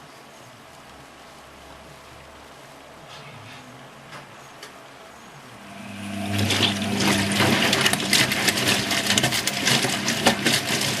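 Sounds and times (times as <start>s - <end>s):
washing machine hum: 5.4s - 11.0s
water rushing and splashing: 5.6s - 11.0s.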